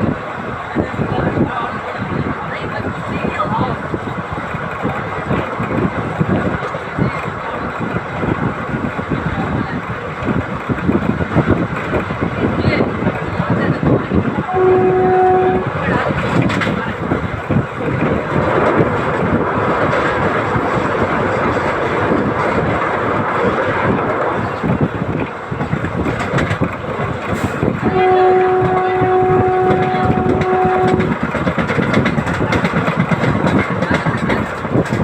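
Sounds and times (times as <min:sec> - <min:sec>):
diesel locomotive engine chugging: 0:00.0 - 0:35.0
locomotive horn: 0:14.5 - 0:15.8, 0:27.8 - 0:31.2.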